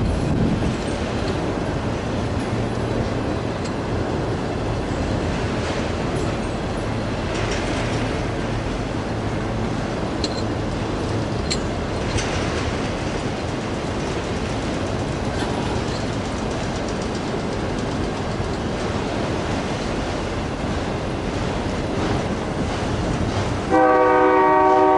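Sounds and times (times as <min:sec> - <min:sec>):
low rumble of train: 0:00.0 - 0:24.9
train wheels on rails: 0:00.0 - 0:24.9.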